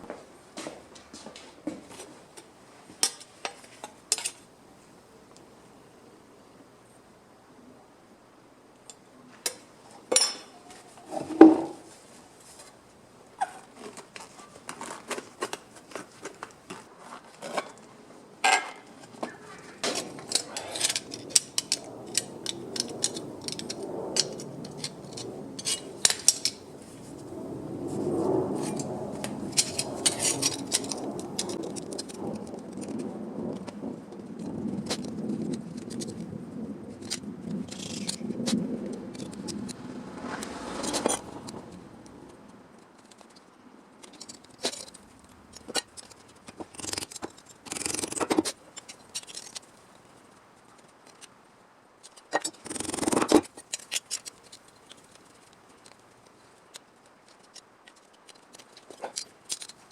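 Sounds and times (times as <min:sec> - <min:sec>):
low scraping and rubbing: 0:19.3 - 0:32.2, 0:39.0 - 0:42.1.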